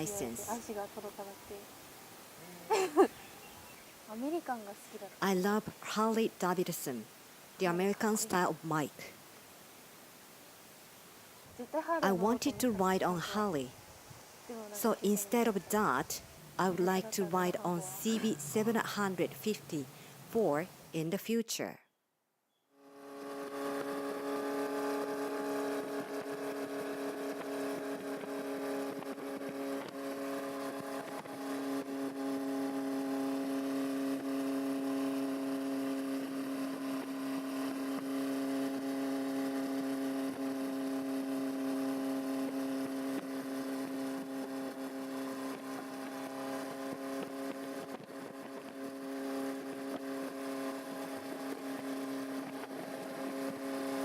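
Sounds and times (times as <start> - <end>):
motorcycle engine running: 22.8 - 54.0.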